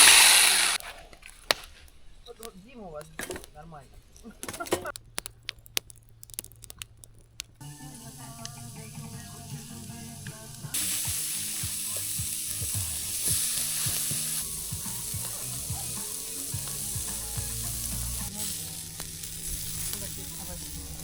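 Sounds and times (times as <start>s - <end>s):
food sizzling and frying: 0.0s - 0.8s, 4.2s - 21.0s
faint music: 7.6s - 21.0s.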